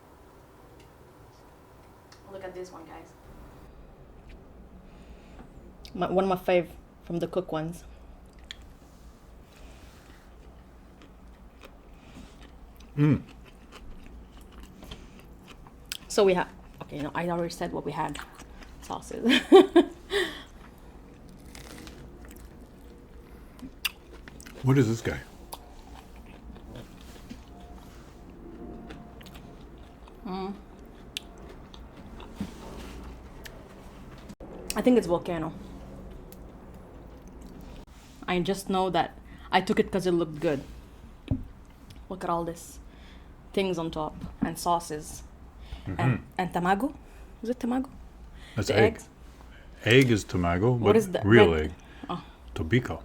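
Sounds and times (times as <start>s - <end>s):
person chewing food: 8.2s - 8.8s, 9.5s - 17.0s, 18.1s - 18.9s, 20.4s - 34.4s.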